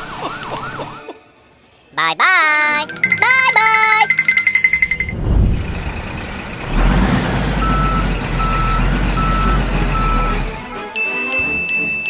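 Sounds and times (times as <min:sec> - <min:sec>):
truck engine rumbling: 0:04.1 - 0:10.8
reversing alarm beeping: 0:06.0 - 0:12.0.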